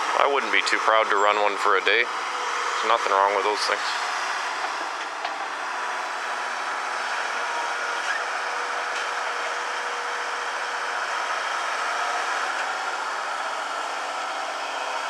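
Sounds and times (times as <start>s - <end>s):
excavator engine running: 0.0s - 15.0s.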